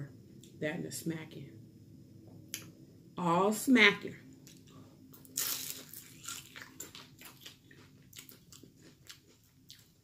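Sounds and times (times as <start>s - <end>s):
person biting and crunching food: 5.2s - 10.0s.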